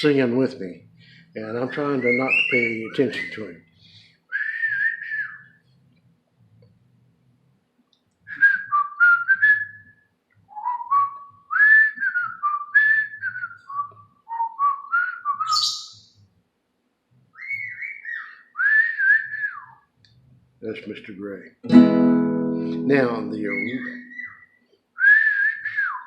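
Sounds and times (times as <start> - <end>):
bird whistling: 1.6 - 3.6, 11.6 - 16.0, 17.4 - 19.8, 22.6 - 26.0.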